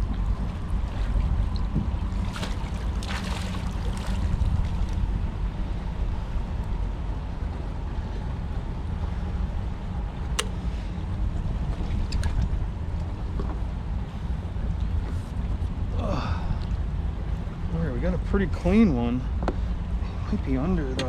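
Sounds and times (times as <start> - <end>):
water moving around kayak: 0.0 - 5.8
wind rumble on microphone: 0.0 - 21.0.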